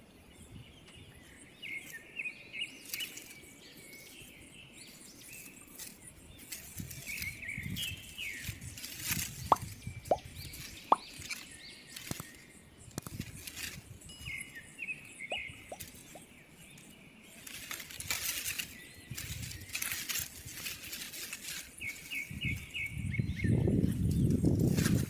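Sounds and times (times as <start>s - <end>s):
rustling and wing flapping: 5.3s - 14.0s, 17.3s - 22.8s, 23.9s - 25.0s
quick high chirps: 9.5s - 11.0s.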